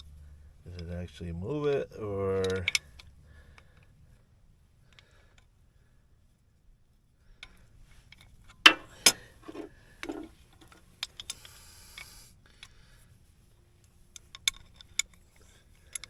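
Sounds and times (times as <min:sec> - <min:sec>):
handling clicks and knocks: 0:08.7 - 0:10.8
short hissing rasp: 0:11.4 - 0:12.4.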